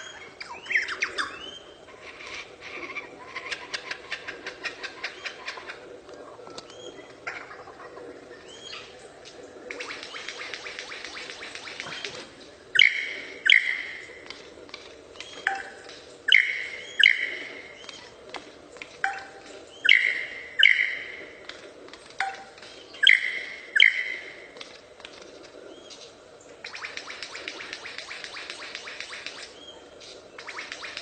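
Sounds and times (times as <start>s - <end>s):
bird calling sharp notes: 9.7s - 14.4s, 15.2s - 18.2s, 19.0s - 21.4s, 22.2s - 24.6s.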